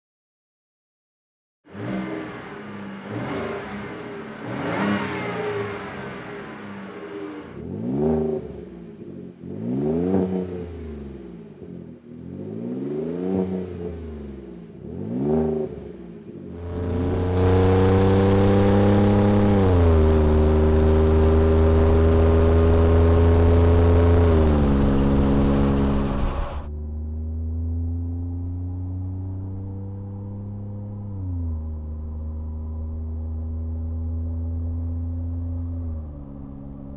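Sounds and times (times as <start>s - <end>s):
truck engine revving: 1.7s - 8.0s, 16.6s - 26.7s.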